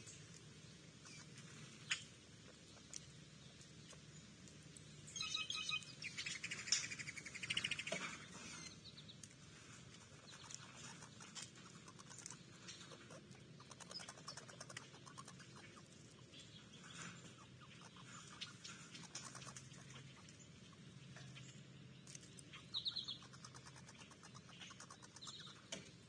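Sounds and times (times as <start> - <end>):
songbird chirping and trilling: 0.0 - 26.0
faint scattered ticks: 5.8 - 26.0.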